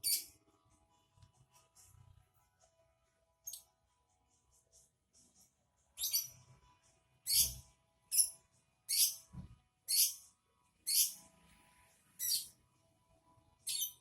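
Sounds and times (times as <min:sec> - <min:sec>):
songbird chirping: 0:06.0 - 0:06.5, 0:07.2 - 0:09.3, 0:13.6 - 0:14.0.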